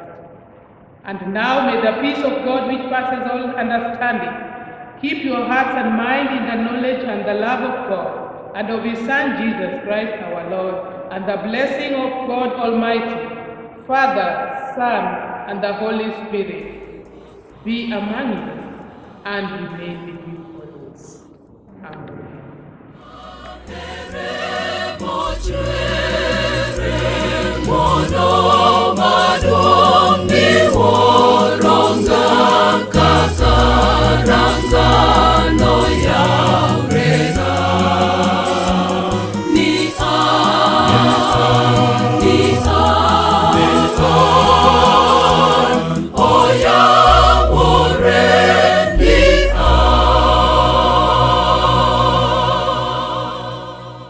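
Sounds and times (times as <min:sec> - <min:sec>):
steady beat: 0:16.6 - 0:20.7, 0:23.0 - 0:53.8
choir singing gospel music: 0:16.6 - 0:21.0, 0:23.0 - 0:54.0
bass line: 0:23.1 - 0:54.0.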